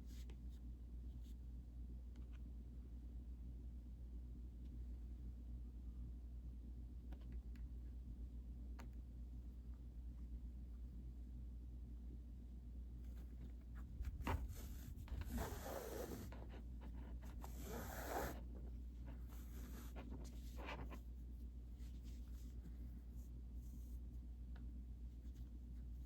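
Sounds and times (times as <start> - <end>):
yarn rubbing on plastic mesh: 13.7 - 22.8
yarn swishes: 13.7 - 22.8.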